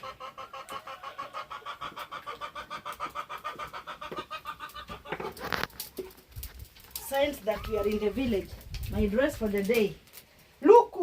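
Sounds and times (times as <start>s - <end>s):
rustling or scraping: 3.1s - 10.6s.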